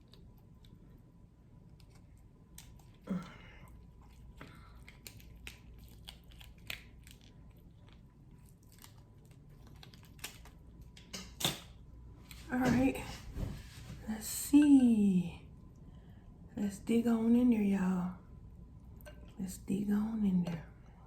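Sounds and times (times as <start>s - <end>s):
crab legs cracking: 1.7s - 11.8s.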